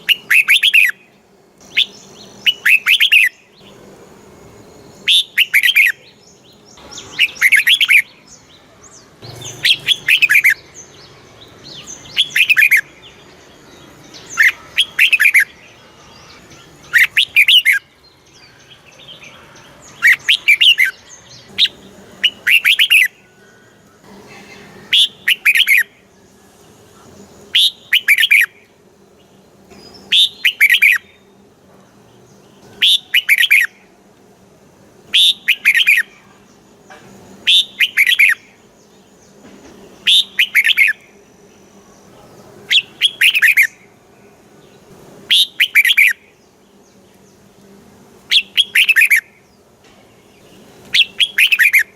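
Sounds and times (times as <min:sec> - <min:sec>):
bird singing whistled phrases: 0:00.0 - 0:01.0, 0:01.7 - 0:03.4, 0:05.0 - 0:06.0, 0:06.8 - 0:08.2, 0:09.4 - 0:10.6, 0:11.8 - 0:12.9, 0:14.2 - 0:15.6, 0:16.8 - 0:17.9, 0:20.0 - 0:23.4, 0:24.8 - 0:25.9, 0:27.5 - 0:28.6, 0:29.8 - 0:31.2, 0:32.8 - 0:33.8, 0:35.1 - 0:36.1, 0:37.5 - 0:38.4, 0:40.0 - 0:41.0, 0:42.7 - 0:43.8, 0:45.3 - 0:46.2, 0:48.3 - 0:49.2, 0:50.9 - 0:51.9.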